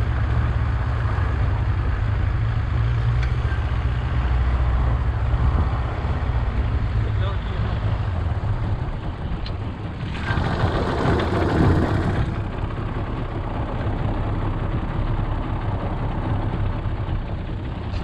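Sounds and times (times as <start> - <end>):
barge engine running: 0.0 - 18.0
rush of noise: 4.6 - 18.0.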